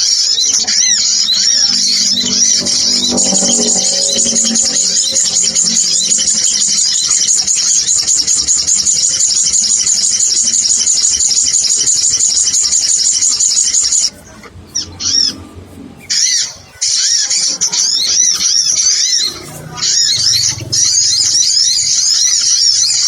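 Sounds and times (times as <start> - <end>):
rapid high bird chirps: 16.1 - 23.0.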